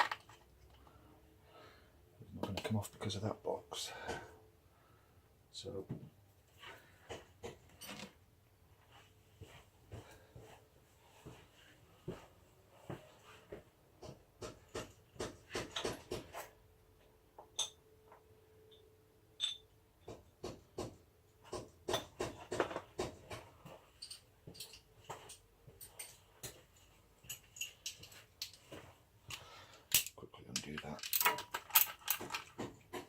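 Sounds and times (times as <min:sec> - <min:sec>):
hand tools clicking and clinking: 0:00.0 - 0:00.8, 0:21.9 - 0:33.0.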